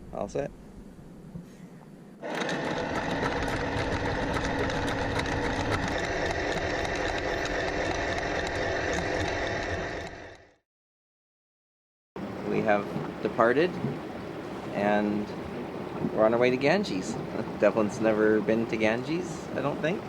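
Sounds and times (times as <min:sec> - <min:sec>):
anchor windlass motor whine: 0:02.1 - 0:10.6, 0:12.2 - 0:20.0
anchor chain clicking: 0:02.2 - 0:10.3.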